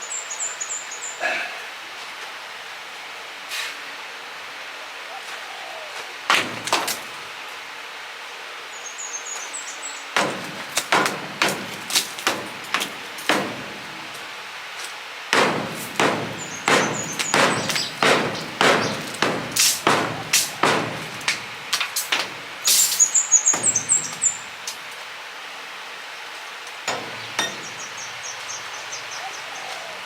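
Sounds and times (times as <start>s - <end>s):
hammer striking brick: 15.4s - 21.0s.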